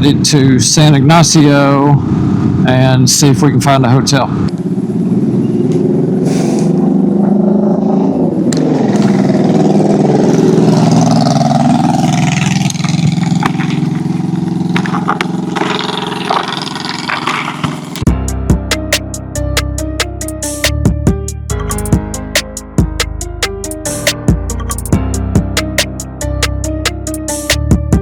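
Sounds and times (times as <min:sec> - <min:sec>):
motorcycle engine running: 0:04.5 - 0:18.6.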